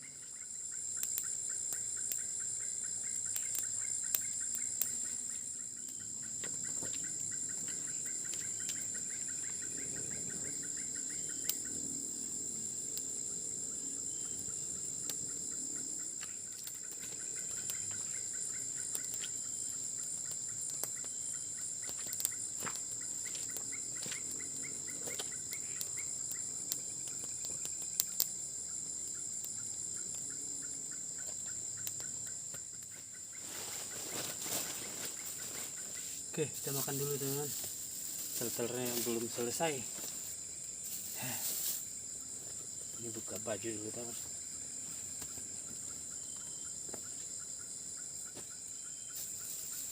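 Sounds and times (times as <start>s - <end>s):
chorus of night insects: 0.0s - 49.9s.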